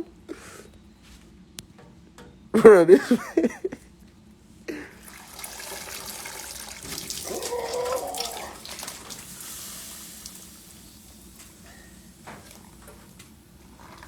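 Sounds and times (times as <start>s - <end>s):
water splashing into a sink: 5.0s - 13.2s.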